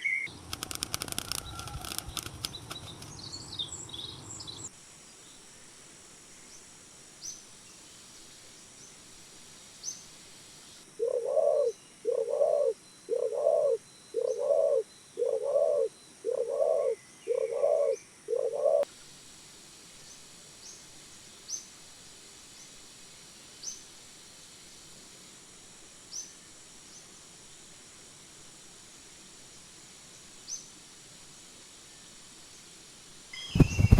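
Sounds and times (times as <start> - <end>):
bird calling: 0.0 - 0.3, 11.0 - 18.8
faint high bird chirps: 0.0 - 0.3, 11.0 - 18.9, 33.3 - 33.9.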